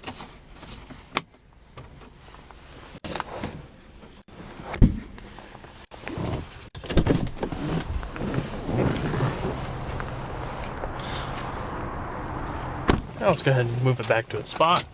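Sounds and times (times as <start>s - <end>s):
heavy thump: 12.6s - 13.2s.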